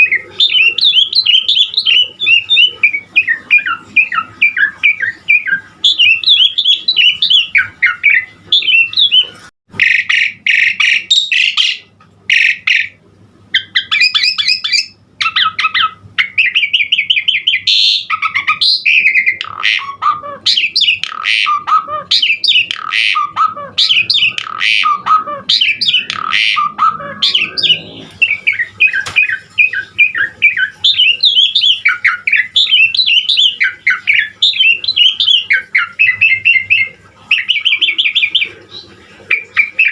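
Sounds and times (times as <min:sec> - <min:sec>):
starling singing whistles and chatter: 0:00.0 - 0:13.0, 0:13.6 - 0:39.9.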